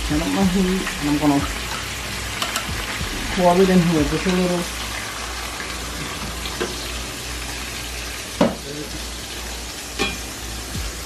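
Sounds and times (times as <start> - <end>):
slurry sizzling in hot oil: 0.0 - 11.0
metal fork clicking on pan: 2.4 - 2.7.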